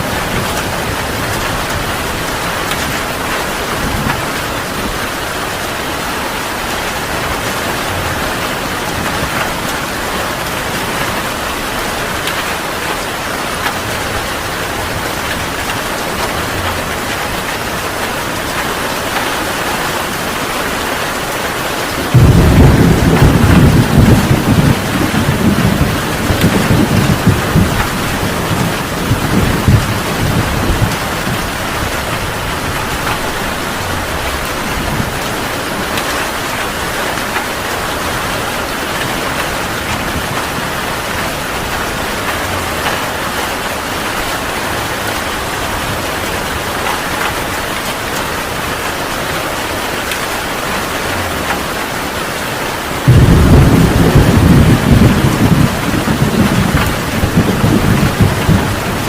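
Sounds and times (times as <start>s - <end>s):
heavy rain falling: 0.0s - 59.0s
thunder rumble: 21.9s - 47.9s, 53.0s - 59.0s.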